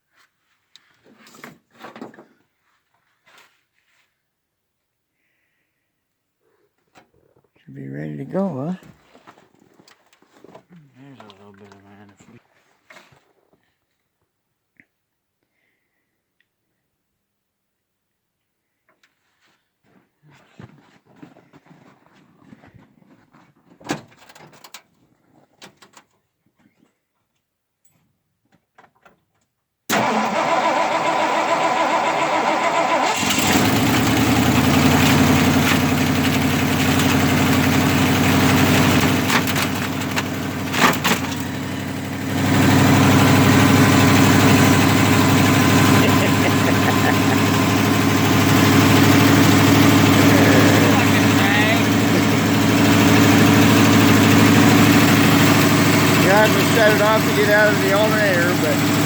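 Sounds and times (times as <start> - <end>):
starter cranking truck engine: 29.9 - 59.0
truck engine running: 29.9 - 59.0.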